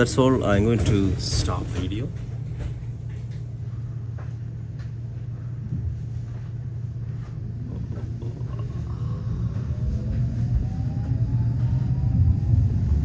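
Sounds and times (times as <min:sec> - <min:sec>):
tram motor whine: 0:00.0 - 0:13.0
tram rumbling: 0:00.0 - 0:13.0.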